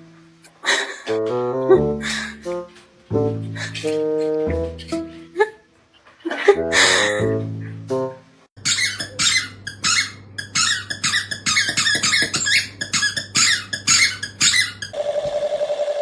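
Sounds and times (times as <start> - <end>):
rapid squeaking: 8.6 - 15.0.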